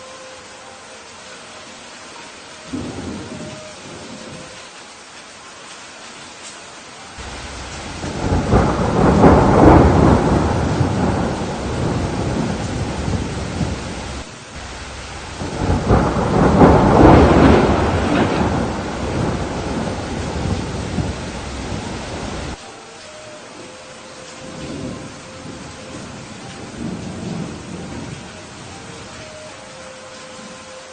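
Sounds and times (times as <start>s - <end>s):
steady rain: 0.0s - 30.9s
thunder rolling: 2.7s - 4.5s, 7.2s - 22.6s, 24.5s - 29.0s.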